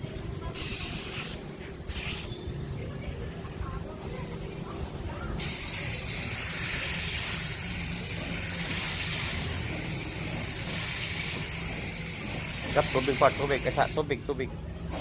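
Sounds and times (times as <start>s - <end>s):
sprayer nozzle hissing: 5.4s - 14.1s.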